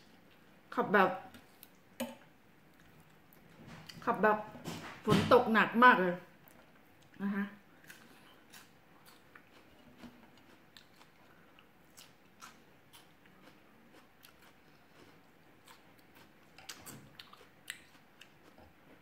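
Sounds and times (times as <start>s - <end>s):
faint crunchy chewing: 1.3s - 1.9s, 2.6s - 4.1s, 6.4s - 19.0s.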